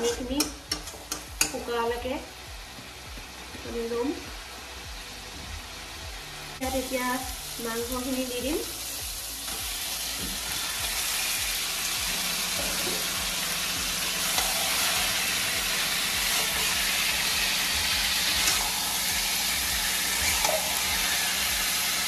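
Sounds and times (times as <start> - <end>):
chicken sizzling in pan: 6.6 - 22.0.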